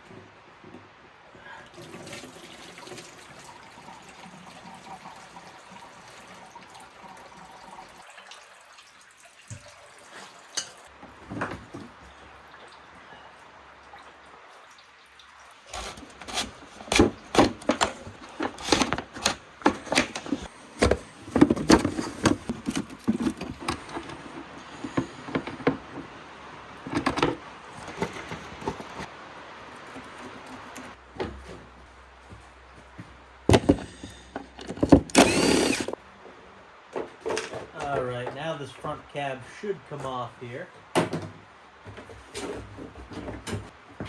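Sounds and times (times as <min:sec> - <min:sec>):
tools and parts knocking and rattling: 0:15.7 - 0:29.1, 0:33.5 - 0:36.0, 0:37.0 - 0:38.4.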